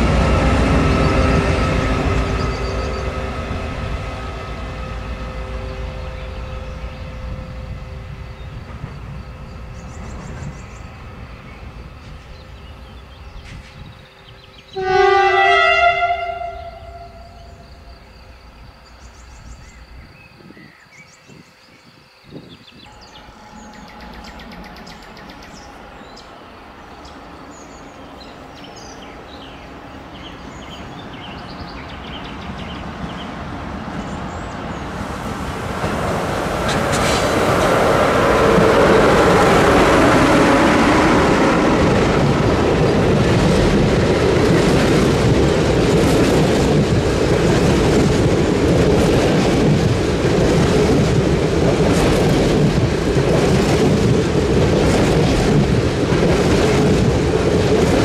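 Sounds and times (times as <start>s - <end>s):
train horn blast: 0.0s - 8.7s, 14.6s - 17.9s, 22.9s - 25.8s, 35.0s - 41.7s
train rumble: 0.0s - 58.0s.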